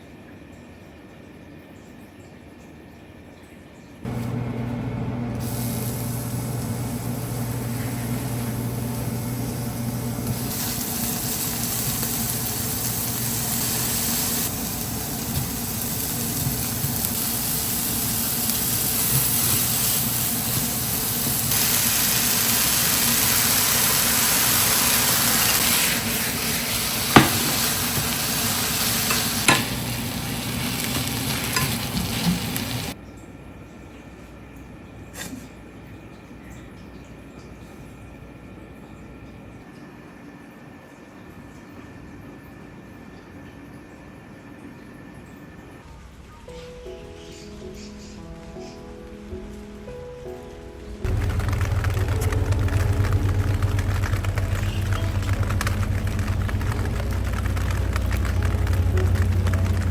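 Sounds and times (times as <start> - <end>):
food sizzling in a frying pan: 4.1 - 33.0, 51.1 - 59.9
sharp knocks on a pan: 27.1 - 27.7, 29.5 - 29.8.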